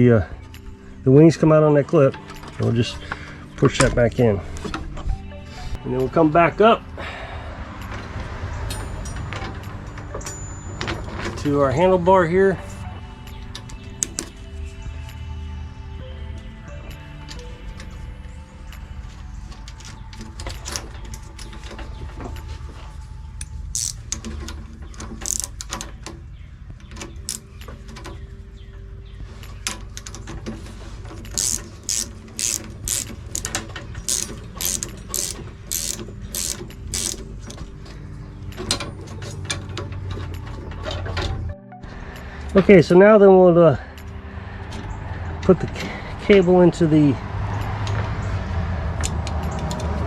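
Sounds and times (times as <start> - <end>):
ratchet-like clicking: 23.7 - 24.1, 25.2 - 25.6, 31.3 - 37.2.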